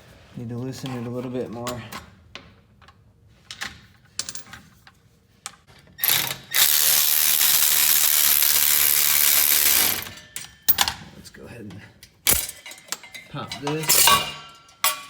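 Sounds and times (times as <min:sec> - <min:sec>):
power tool running: 0:06.0 - 0:10.1.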